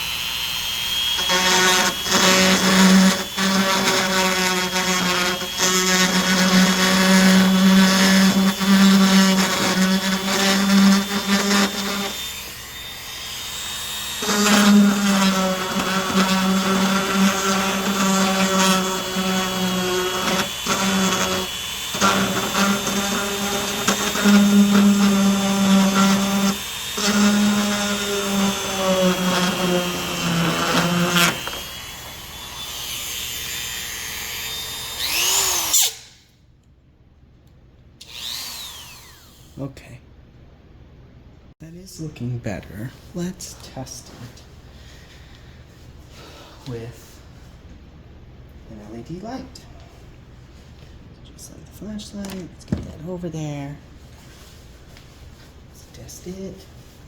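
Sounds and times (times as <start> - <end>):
rotary tool grinding plastic: 14.1 - 33.1.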